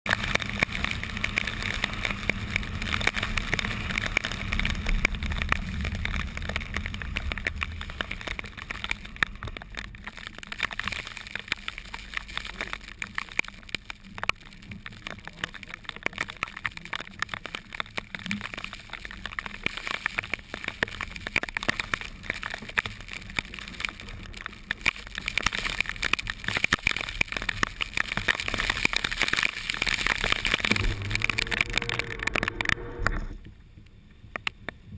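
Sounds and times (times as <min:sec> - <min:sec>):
rain ticking on a car: 0:00.0 - 0:34.9
car road and engine noise: 0:29.5 - 0:34.9.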